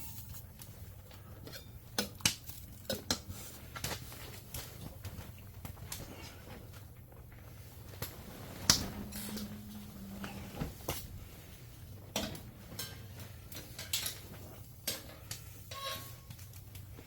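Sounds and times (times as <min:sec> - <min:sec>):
pots and utensils clinking: 0:00.0 - 0:03.5, 0:12.1 - 0:17.0
low steady hum: 0:00.0 - 0:17.0.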